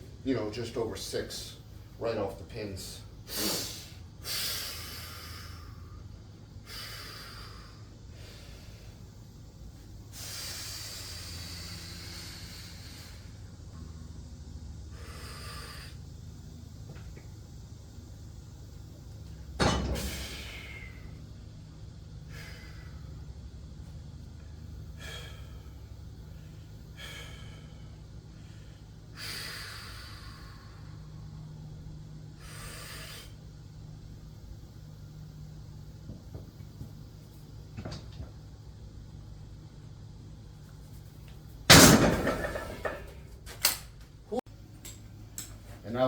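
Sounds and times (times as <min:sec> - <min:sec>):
steady low hum: 0:00.0 - 0:46.0
loud exhales: 0:03.3 - 0:05.9, 0:14.9 - 0:16.0, 0:19.6 - 0:21.2, 0:25.0 - 0:25.8, 0:29.2 - 0:31.1, 0:32.4 - 0:33.4
man breathing hard: 0:03.3 - 0:09.2, 0:10.1 - 0:13.6, 0:14.8 - 0:16.2, 0:20.0 - 0:21.4, 0:22.0 - 0:23.5, 0:24.6 - 0:33.7.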